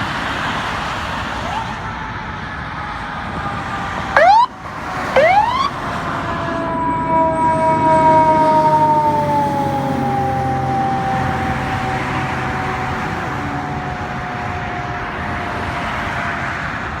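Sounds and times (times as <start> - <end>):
vehicle road noise: 0.0 - 17.0
siren wailing: 1.1 - 14.6.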